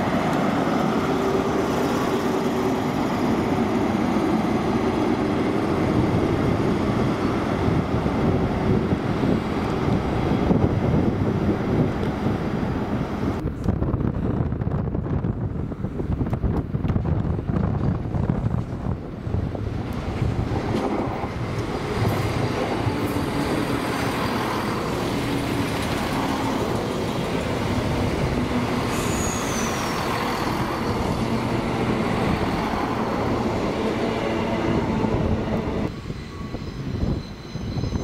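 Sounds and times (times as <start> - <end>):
train rumbling past: 0.0 - 38.0
falling squeal: 28.8 - 31.5, 35.9 - 38.0.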